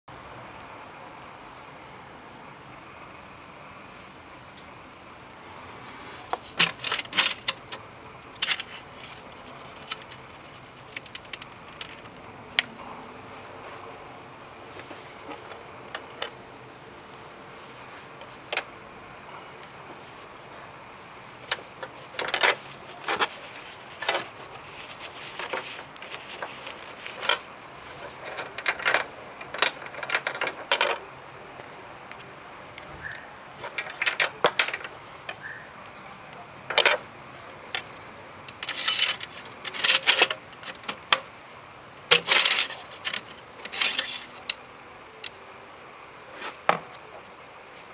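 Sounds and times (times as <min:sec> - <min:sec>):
hard objects clicking and clattering: 0:06.3 - 0:12.7, 0:21.4 - 0:31.0, 0:33.6 - 0:35.0, 0:37.7 - 0:41.3, 0:42.1 - 0:44.6.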